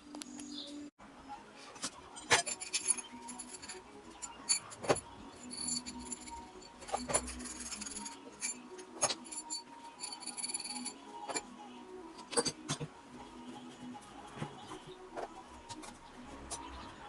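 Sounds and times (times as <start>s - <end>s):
metal tools clinking and knocking: 1.8s - 11.5s.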